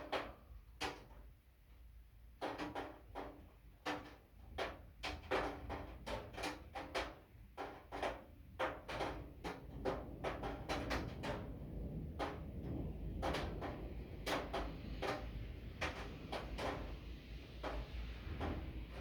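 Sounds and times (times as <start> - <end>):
rain knocking on hard surface: 0.0 - 1.3, 2.4 - 19.0
steady low rumble: 18.1 - 19.0.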